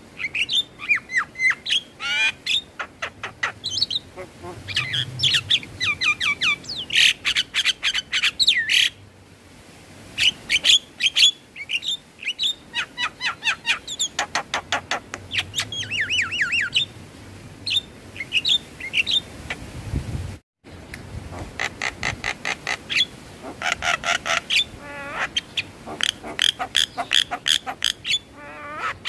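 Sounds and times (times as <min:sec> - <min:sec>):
myna chattering and whistling: 0:03.4 - 0:06.6.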